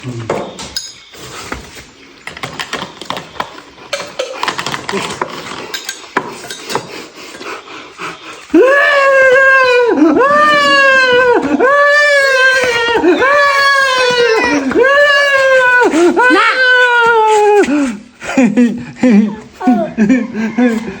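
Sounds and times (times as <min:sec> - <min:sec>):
dishes and utensils clattering: 0:00.1 - 0:07.7
loud crying wail: 0:08.5 - 0:18.1, 0:19.0 - 0:21.0.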